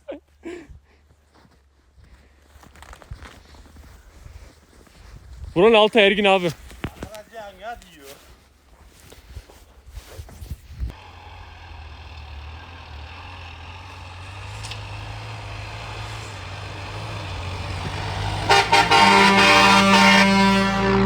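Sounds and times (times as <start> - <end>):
pickup engine revving: 11.0 - 21.0.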